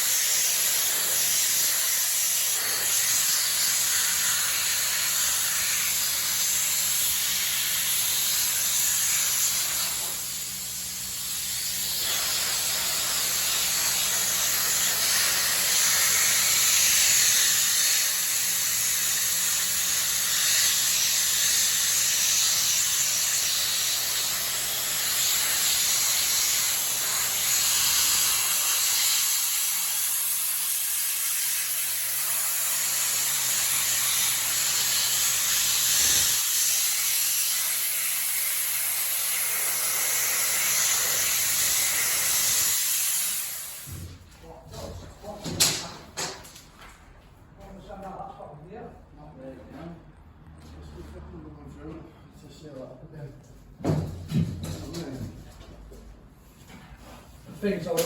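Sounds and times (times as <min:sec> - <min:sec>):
blasting gun hissing: 0:00.0 - 0:43.9.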